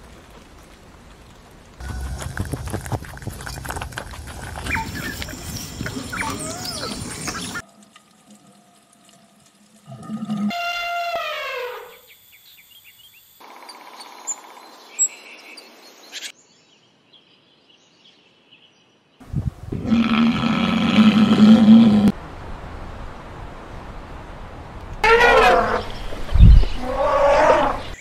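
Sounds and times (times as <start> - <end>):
animal roaring call: 19.7 - 22.2, 25.0 - 26.0, 26.6 - 28.0
animal falling call: 25.0 - 28.0.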